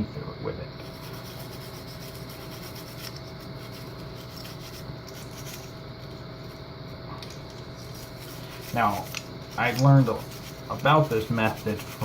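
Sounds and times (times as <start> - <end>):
toothbrush scrubbing plastic: 0.8 - 5.8, 7.5 - 12.0.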